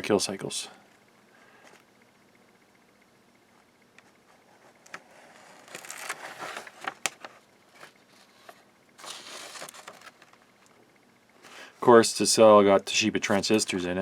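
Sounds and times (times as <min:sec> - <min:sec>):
rustling handling noises: 0:04.0 - 0:10.8, 0:12.8 - 0:14.0.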